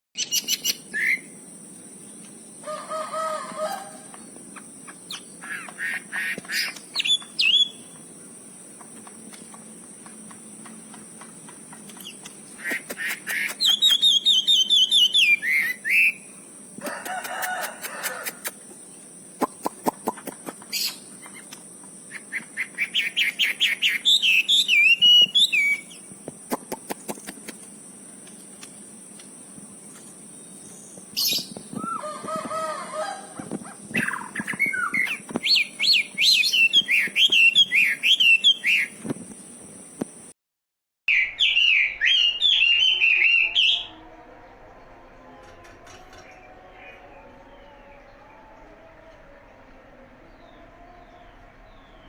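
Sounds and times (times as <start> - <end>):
songbird chattering song: 0.2 - 16.5, 17.2 - 32.1, 33.4 - 39.6
faint steady high whine: 0.2 - 40.4
sharp clicks: 26.4 - 29.3.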